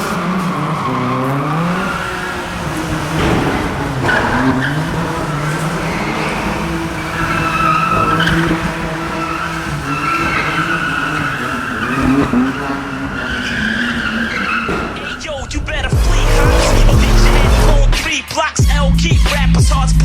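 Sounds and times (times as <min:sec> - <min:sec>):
car engine revving high: 0:00.0 - 0:18.2
tyres squealing on tarmac: 0:00.0 - 0:18.5.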